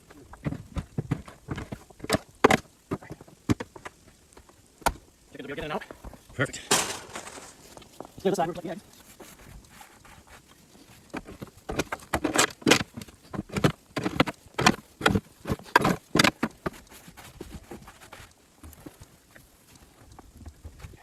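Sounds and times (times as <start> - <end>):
snow crunching and scraping: 6.4 - 18.2.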